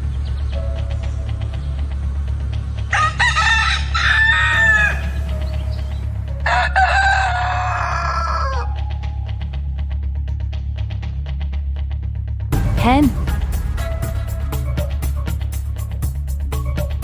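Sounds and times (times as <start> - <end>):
rooster crowing: 3.0 - 5.0, 6.5 - 8.8.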